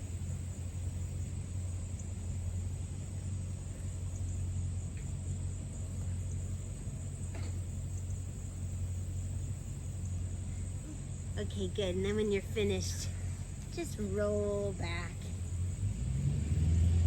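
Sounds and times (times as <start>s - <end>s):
low background hum: 0.0s - 17.0s
faint ticks: 3.8s - 8.1s.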